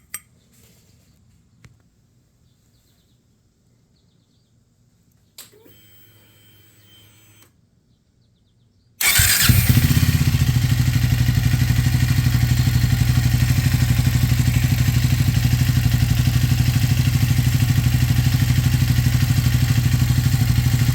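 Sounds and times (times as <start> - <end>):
faint starter whirr: 9.0 - 20.9
motorcycle engine idling: 9.0 - 20.9.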